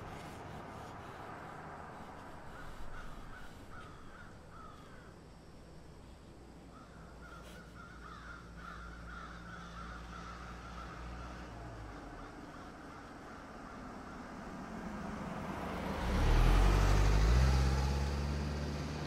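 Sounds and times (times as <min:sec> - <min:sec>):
bird calling: 0:00.0 - 0:05.2, 0:06.7 - 0:14.4
steady low rumble: 0:00.0 - 0:07.2.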